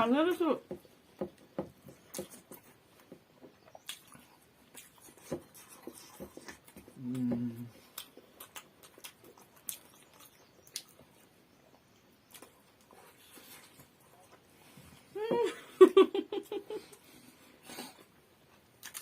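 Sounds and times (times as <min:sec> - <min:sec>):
person chewing food: 0:00.7 - 0:14.8, 0:16.9 - 0:19.0
closed-mouth hum: 0:06.2 - 0:08.2.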